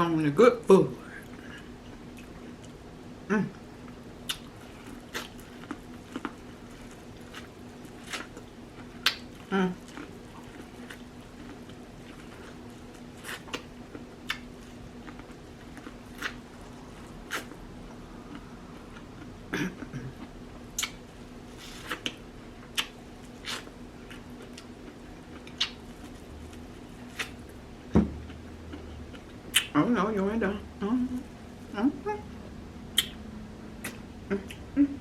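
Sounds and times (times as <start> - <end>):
faint steady hum: 0.0 - 35.0
lip smacks and clicks: 4.2 - 4.5, 9.0 - 9.3, 20.7 - 21.0, 22.0 - 23.6, 25.4 - 25.8, 29.5 - 29.7, 32.9 - 33.2
wet chewing: 4.2 - 19.3, 21.6 - 27.5.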